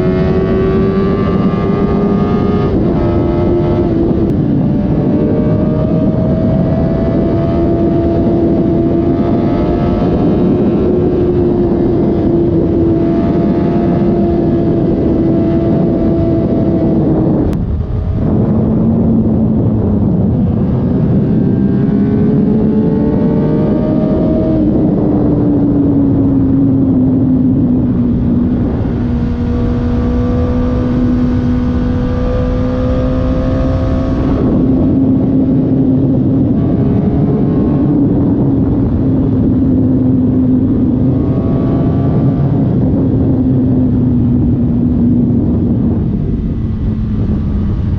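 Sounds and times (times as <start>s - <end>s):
motorcycle engine running: 0.0s - 47.9s
wind rushing: 0.0s - 47.9s.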